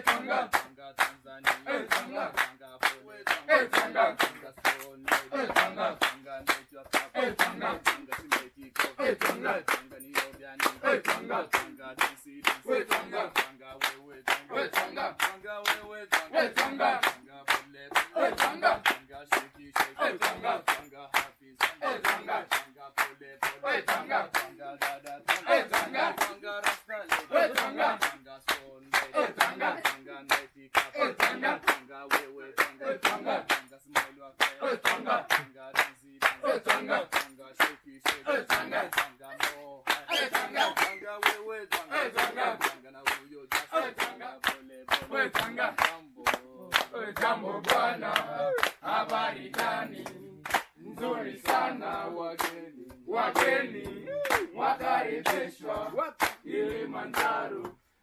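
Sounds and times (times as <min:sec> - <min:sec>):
percussive beat: 0:00.0 - 0:20.8
group singing and chanting: 0:00.0 - 0:58.0.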